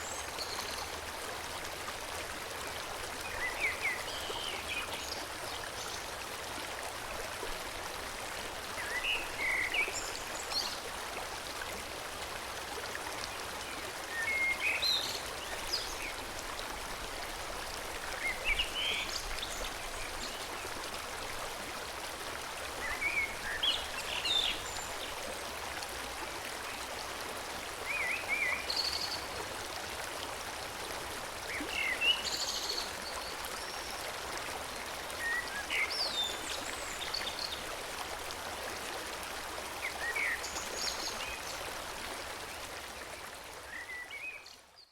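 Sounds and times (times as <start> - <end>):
stream flowing: 0.0 - 44.8.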